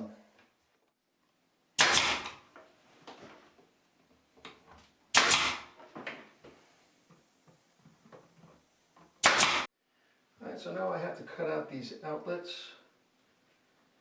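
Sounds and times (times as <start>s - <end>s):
pneumatic nailer firing: 1.8s - 2.4s, 5.1s - 5.8s, 9.2s - 9.7s.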